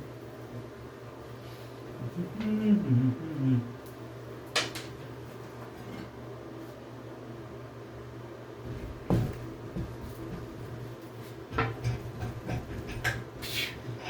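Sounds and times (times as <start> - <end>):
low steady hum: 0.0 - 14.0
hard objects knocking and clunking: 8.7 - 10.6, 11.5 - 13.3.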